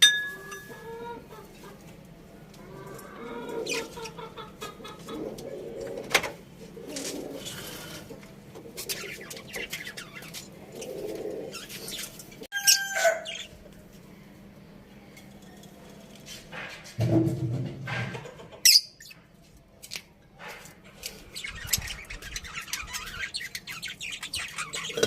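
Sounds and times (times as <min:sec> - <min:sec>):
pet birds chirping: 0:03.3 - 0:05.7, 0:08.6 - 0:13.6, 0:18.5 - 0:19.3, 0:20.9 - 0:25.0.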